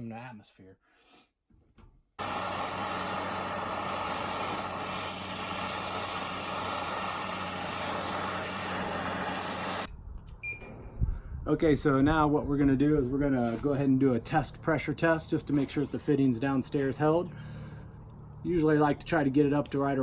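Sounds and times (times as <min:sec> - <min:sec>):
torch flame hissing: 0:02.2 - 0:09.9.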